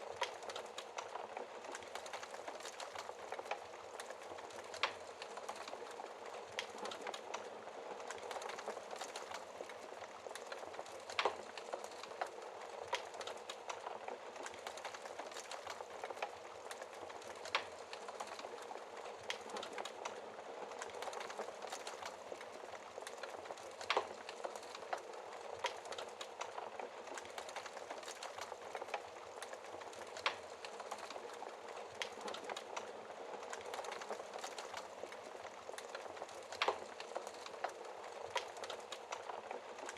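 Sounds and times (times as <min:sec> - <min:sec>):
wood fire crackling: 0:00.0 - 0:39.9
fire pops: 0:33.5 - 0:39.9.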